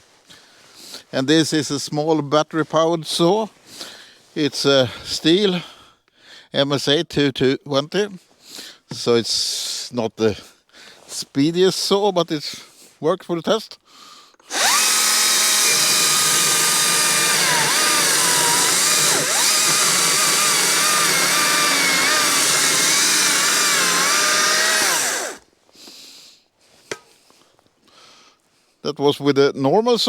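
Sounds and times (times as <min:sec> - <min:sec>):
battery chainsaw cutting log: 0:14.5 - 0:25.4.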